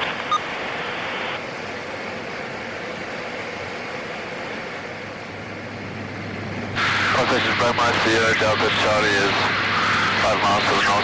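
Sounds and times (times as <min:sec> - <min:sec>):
radio hiss: 0:00.0 - 0:01.4, 0:06.8 - 0:11.0
turboprop engine drone: 0:00.0 - 0:11.0.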